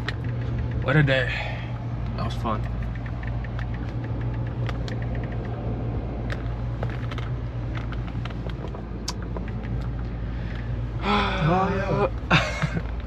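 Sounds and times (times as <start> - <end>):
light clicks and ticks: 0.0 - 1.2, 1.8 - 10.7
vehicle engine humming: 0.0 - 13.0.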